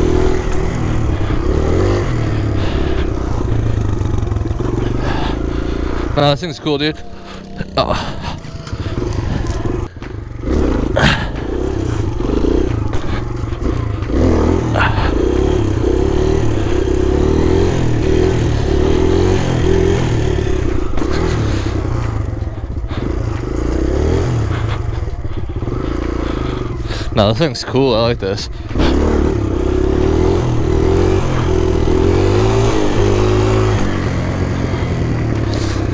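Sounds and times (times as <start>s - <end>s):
dirt bike engine revving: 0.0s - 35.9s.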